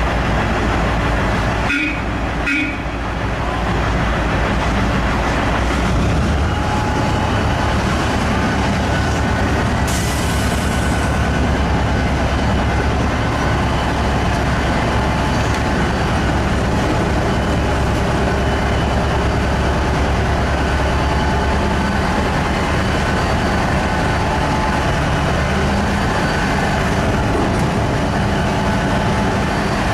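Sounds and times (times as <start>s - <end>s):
large diesel truck engine running: 0.0s - 29.9s.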